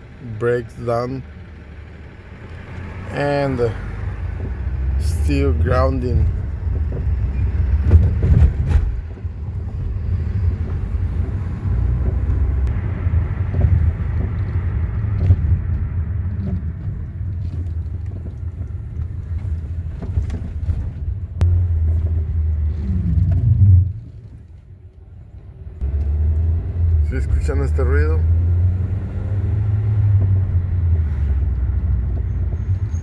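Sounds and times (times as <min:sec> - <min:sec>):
car brakes grinding: 0:02.4 - 0:24.6.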